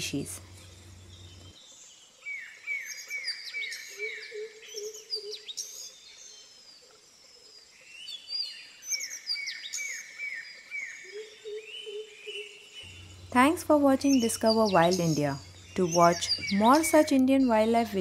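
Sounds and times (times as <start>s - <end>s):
high bird chirps: 12.9s - 18.0s
low hooting notes: 12.9s - 18.0s.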